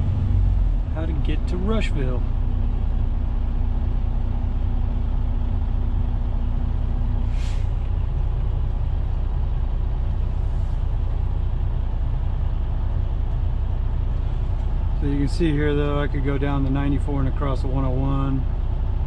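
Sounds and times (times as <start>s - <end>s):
diesel truck engine running: 0.0s - 19.0s
air hiss: 7.2s - 7.8s.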